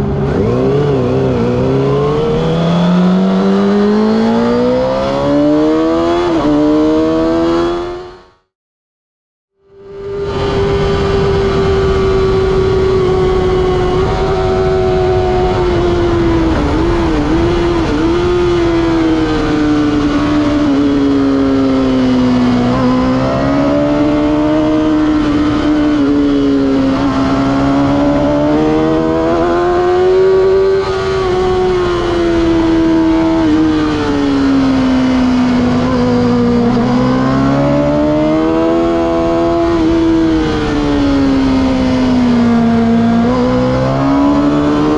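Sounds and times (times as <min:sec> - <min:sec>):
motorcycle engine at high revs: 0:00.0 - 0:08.5, 0:09.7 - 0:44.9.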